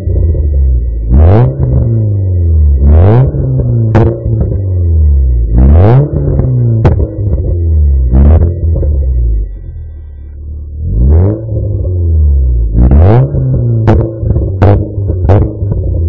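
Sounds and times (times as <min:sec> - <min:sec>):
car engine revving: 0:00.0 - 0:16.0
exhaust pops: 0:12.7 - 0:16.0.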